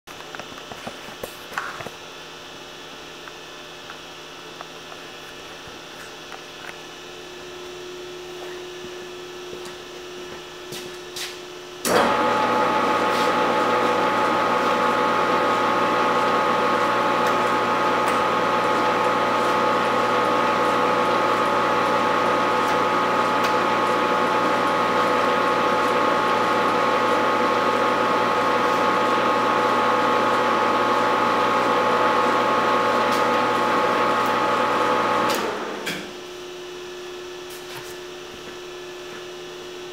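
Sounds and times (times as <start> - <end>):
lathe motor whining: 11.8 - 35.9.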